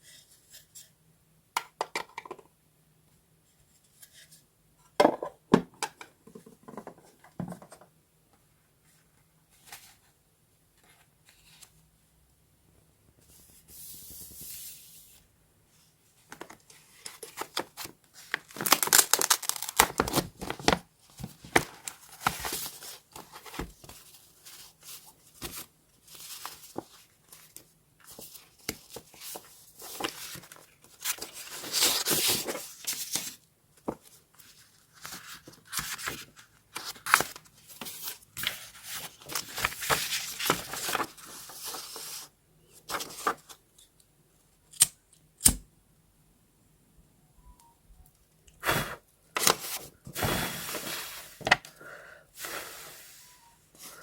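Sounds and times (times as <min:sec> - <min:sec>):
soft paper rustle: 0:08.8 - 0:11.9, 0:13.2 - 0:43.6.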